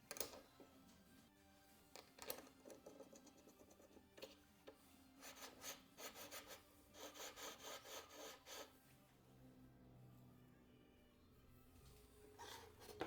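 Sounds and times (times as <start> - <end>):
metal being scraped by hand: 5.2 - 8.7.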